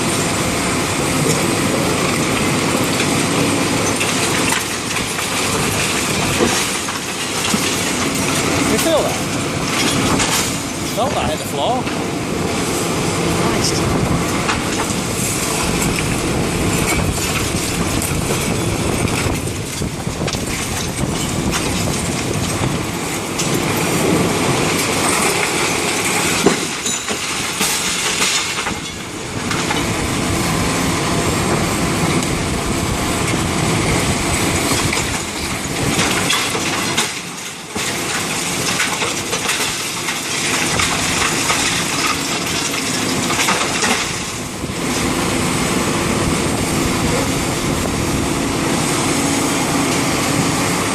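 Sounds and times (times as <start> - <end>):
concrete being broken: 34.8 - 44.4.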